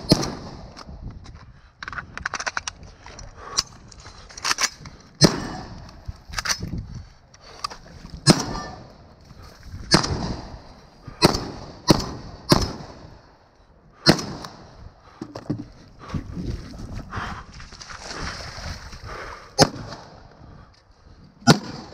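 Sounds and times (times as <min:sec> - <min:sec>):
gunshots with echo: 0:05.2 - 0:05.8, 0:08.2 - 0:08.9, 0:09.9 - 0:13.1, 0:14.0 - 0:14.7.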